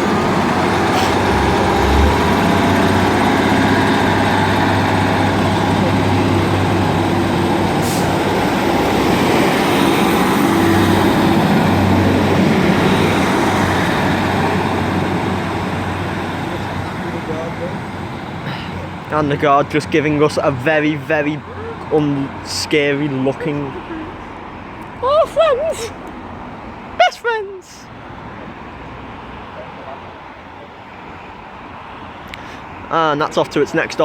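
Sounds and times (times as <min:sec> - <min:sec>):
diesel train engines pulling away: 0:00.0 - 0:25.0.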